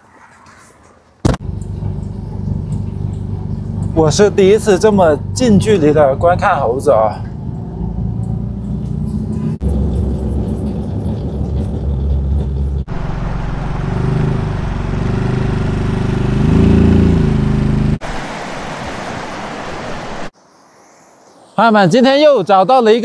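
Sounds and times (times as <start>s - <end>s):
road noise: 0.0s - 20.4s
car engine: 1.3s - 18.0s.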